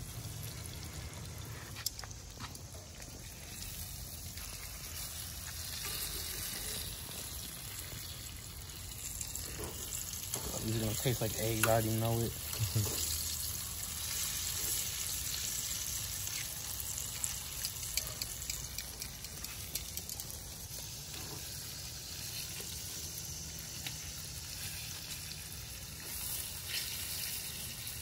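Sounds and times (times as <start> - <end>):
fish sizzling in oil: 0.0 - 28.0.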